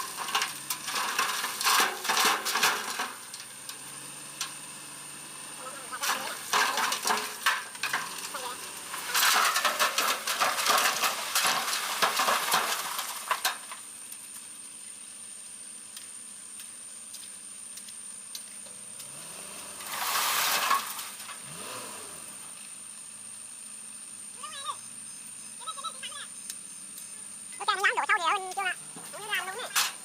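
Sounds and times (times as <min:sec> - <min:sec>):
excavator bucket scraping earth: 0:00.0 - 0:13.8, 0:19.0 - 0:22.5.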